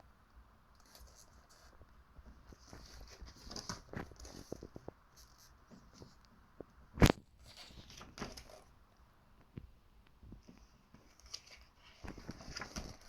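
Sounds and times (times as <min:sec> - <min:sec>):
small clicks and scrapes: 0:00.7 - 0:08.7, 0:10.3 - 0:13.0
book pages rustling: 0:00.8 - 0:06.3, 0:07.0 - 0:08.7, 0:10.4 - 0:13.0.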